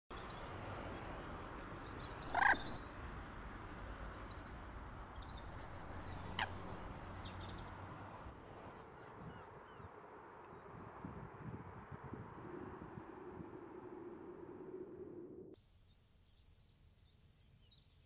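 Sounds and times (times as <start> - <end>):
distant road traffic hum: 0.1 - 10.5
faint small birds chirping: 1.5 - 2.9, 15.6 - 18.0
loud bird call: 2.1 - 2.8, 5.6 - 6.9.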